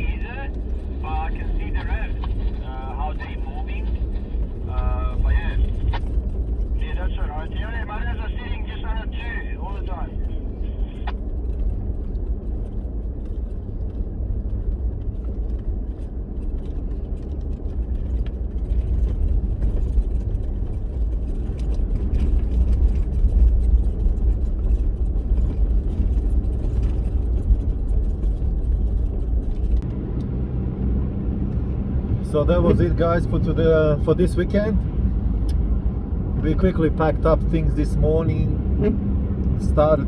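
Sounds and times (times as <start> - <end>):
vehicle engine and tyre rumble: 0.0 - 40.0
light rattles: 10.2 - 29.8.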